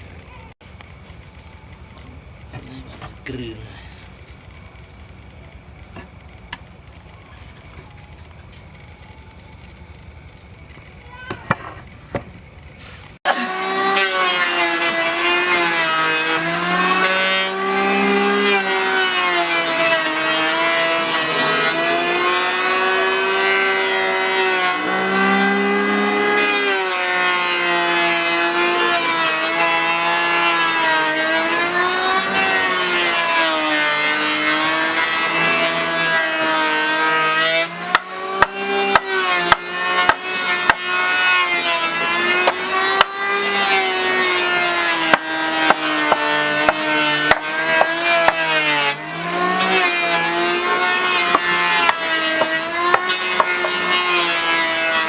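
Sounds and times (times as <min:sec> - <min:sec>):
power tool motor on wood: 0:00.7 - 0:55.0
sharp wooden knocks: 0:11.3 - 0:12.6, 0:37.9 - 0:41.1, 0:42.1 - 0:43.4, 0:44.6 - 0:48.5, 0:49.6 - 0:54.0.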